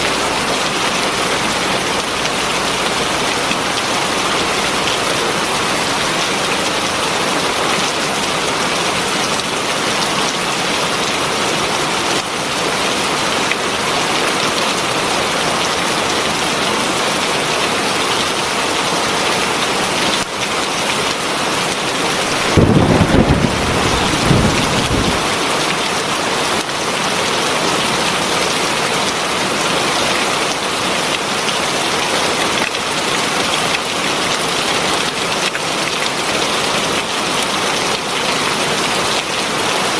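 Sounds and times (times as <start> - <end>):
heavy rain: 0.0 - 39.9
low rumble of thunder: 22.3 - 25.5.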